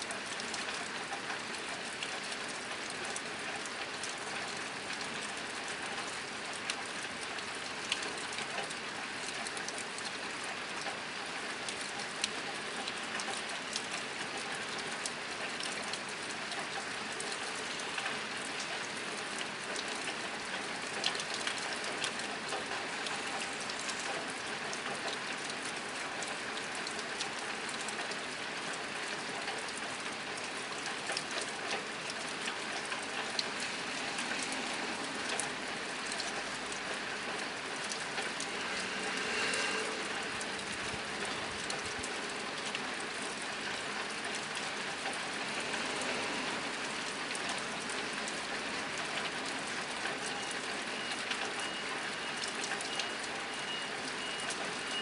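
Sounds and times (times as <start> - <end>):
rain on a tin roof: 0.0 - 55.0.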